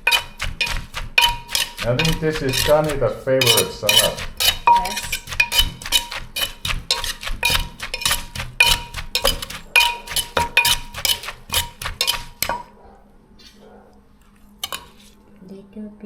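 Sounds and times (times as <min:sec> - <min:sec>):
pestle knocking in mortar: 0:00.0 - 0:12.7
spoon clinking against bowl: 0:00.0 - 0:12.7, 0:14.6 - 0:15.0.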